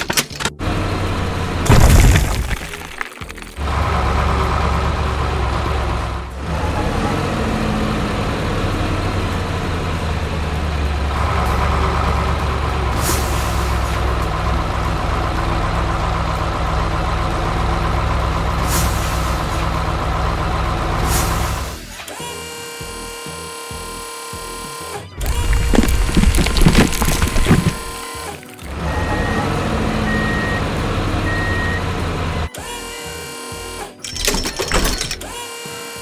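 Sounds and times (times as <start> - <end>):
truck diesel engine running: 0.0 - 21.8, 25.2 - 32.6
air brake hisses: 13.0 - 14.2, 18.6 - 19.8, 21.0 - 21.9.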